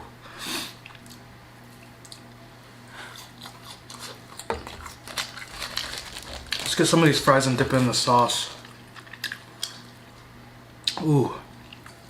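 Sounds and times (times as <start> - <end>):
steady low hum: 0.0 - 12.0
close chewing and mouth sounds: 0.7 - 2.4, 3.0 - 6.8, 11.6 - 12.0
fries rustling: 4.0 - 9.9.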